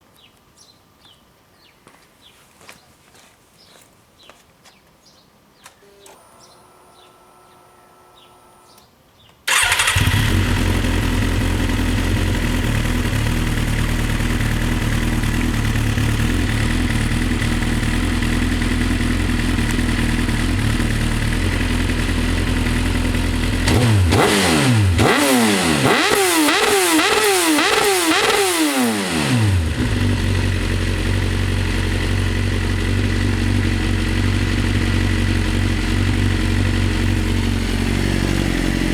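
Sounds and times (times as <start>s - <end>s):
engine throttle blips: 9.5s - 38.9s
motorcycle engine starting and idling: 9.5s - 38.9s.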